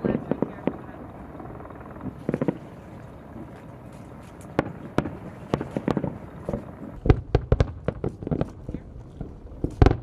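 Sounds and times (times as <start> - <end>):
fireworks sharp bangs: 0.0 - 1.0, 1.9 - 2.8, 4.5 - 10.0
fireworks crackling pops: 2.0 - 2.7, 4.3 - 10.0.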